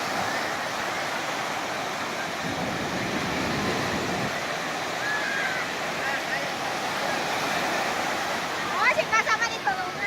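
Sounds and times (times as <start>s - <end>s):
sea surf rushing: 0.0s - 10.0s.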